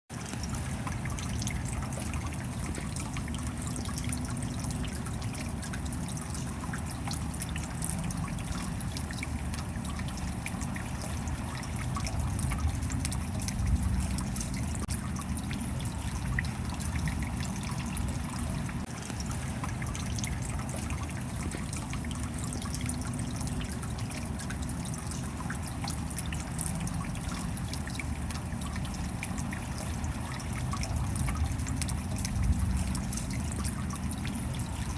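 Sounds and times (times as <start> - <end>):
steady rain: 0.1 - 34.9.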